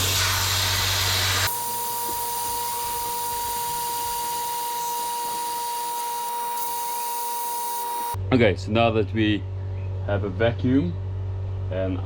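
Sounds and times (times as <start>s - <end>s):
air hissing: 0.0s - 8.2s.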